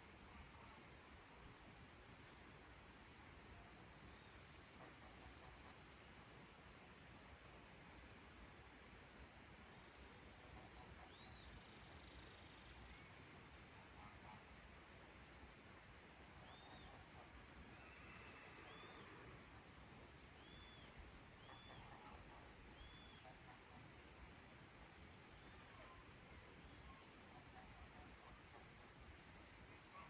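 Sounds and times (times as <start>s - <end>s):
high insect drone: 11.1s - 30.0s.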